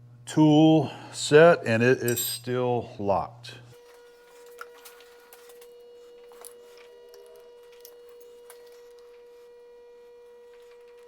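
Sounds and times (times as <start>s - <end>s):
steady faint hum: 0.0s - 3.8s.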